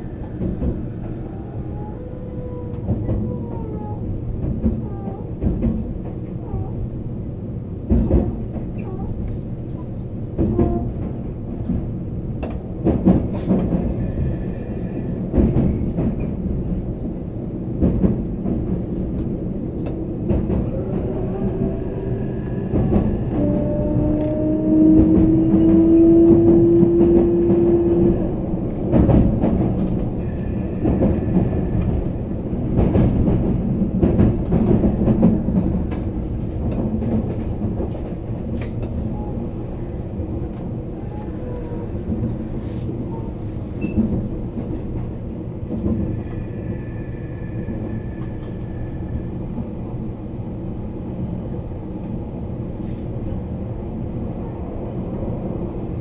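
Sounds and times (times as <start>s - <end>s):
train wheels rumbling on rails: 0.0s - 56.0s
train motor whine: 20.5s - 29.2s, 45.8s - 49.7s.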